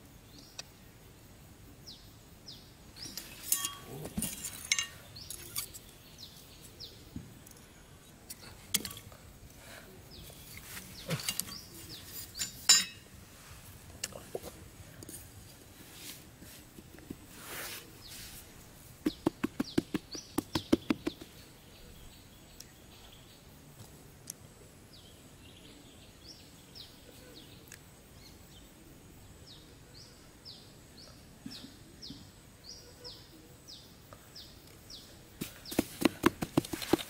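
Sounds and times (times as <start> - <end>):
small bird chirping: 1.8 - 7.7, 17.6 - 23.5
sharp taps: 19.0 - 21.3.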